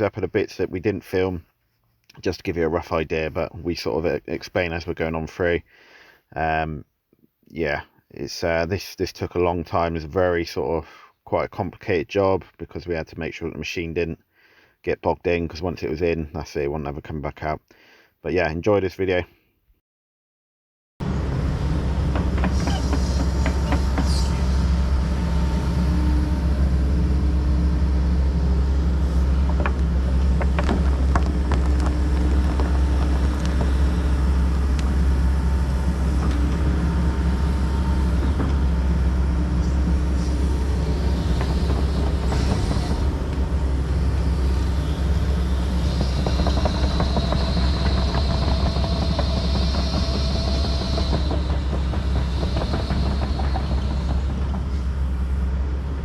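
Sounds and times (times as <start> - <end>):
excavator diesel drone: 21.0 - 56.0
machine clanks and knocks: 22.1 - 26.4, 29.3 - 35.0, 36.1 - 56.0.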